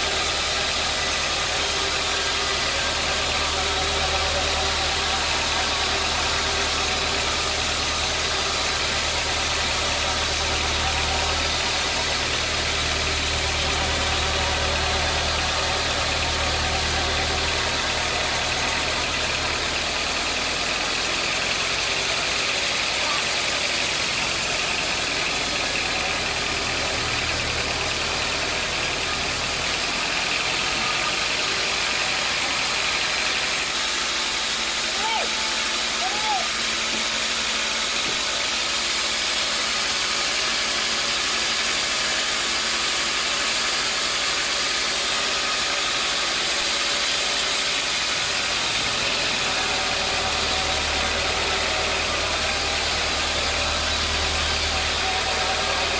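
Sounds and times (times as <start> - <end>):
machinery hiss: 0.0 - 34.9
sawmill machinery droning: 0.0 - 55.9.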